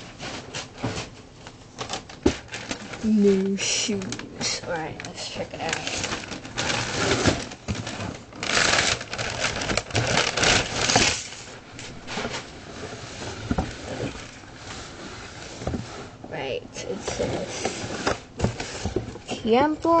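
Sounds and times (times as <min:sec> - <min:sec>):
paper rustling: 0:00.0 - 0:16.2
cardboard shoebox being opened: 0:00.3 - 0:14.5.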